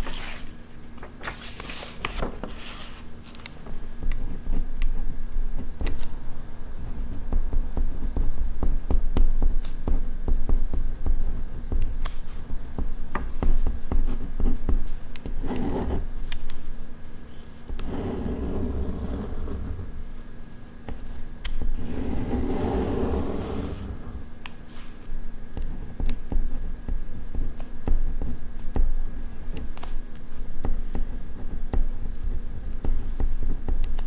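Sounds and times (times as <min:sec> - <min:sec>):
pen writing on paper: 0:15.3 - 0:16.1, 0:17.8 - 0:20.0, 0:21.8 - 0:24.2
low rumble from desk: 0:15.4 - 0:16.1, 0:17.7 - 0:20.4, 0:21.7 - 0:24.4
brushing noise: 0:17.8 - 0:20.2, 0:21.8 - 0:24.3.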